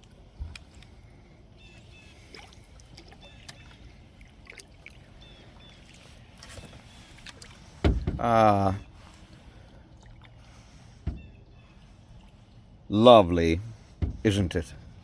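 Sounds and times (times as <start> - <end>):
paddle stroke in water: 0.0 - 12.8
water dripping from paddle: 2.2 - 8.4, 9.3 - 12.7.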